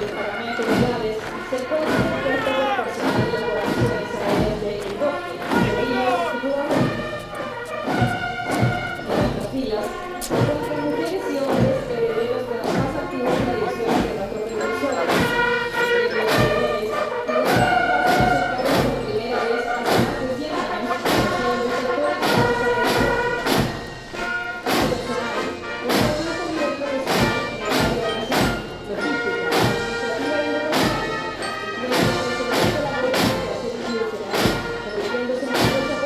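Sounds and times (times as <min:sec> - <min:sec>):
bass drum beat: 0:00.0 - 0:14.4
brass melody: 0:00.0 - 0:36.0.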